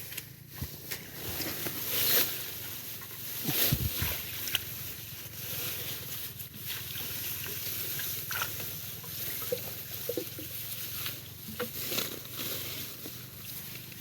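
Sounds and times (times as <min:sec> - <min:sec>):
water splashing and sloshing: 0:00.9 - 0:12.1.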